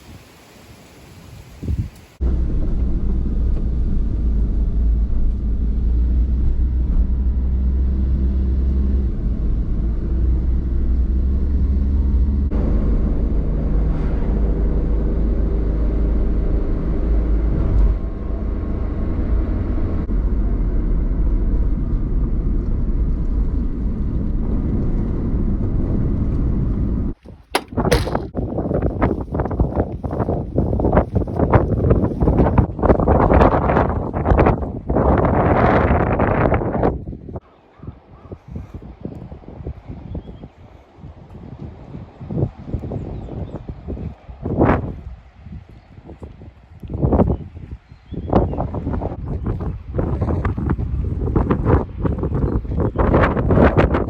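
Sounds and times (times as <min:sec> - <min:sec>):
vehicle engine rumbling: 0:01.7 - 0:37.4.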